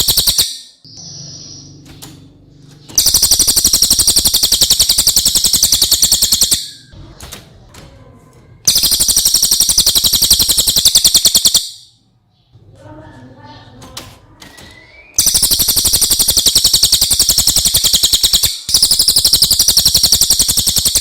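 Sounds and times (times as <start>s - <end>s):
fast high-pitched bird trills: 0.0s - 1.8s, 2.8s - 7.0s, 8.7s - 12.0s, 14.6s - 21.0s.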